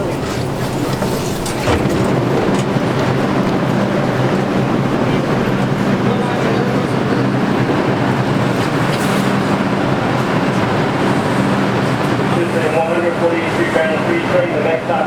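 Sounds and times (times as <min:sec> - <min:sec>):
subway car rumble and hum: 0:00.0 - 0:15.0.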